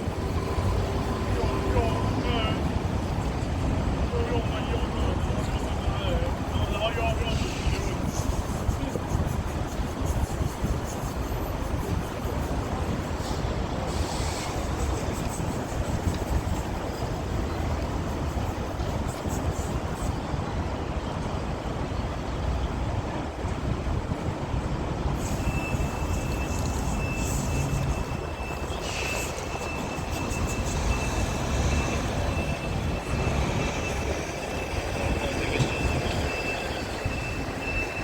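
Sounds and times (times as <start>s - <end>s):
thin high whine: 25.2s - 38.0s.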